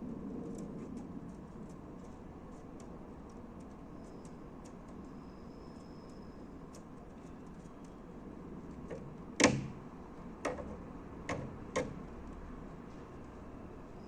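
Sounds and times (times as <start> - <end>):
bird pecking taps: 10.4 - 12.0.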